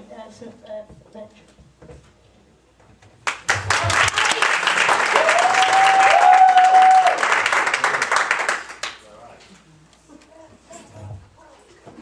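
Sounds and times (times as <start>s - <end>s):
audience applause: 3.2s - 9.0s
person cheering high and long: 5.1s - 7.3s.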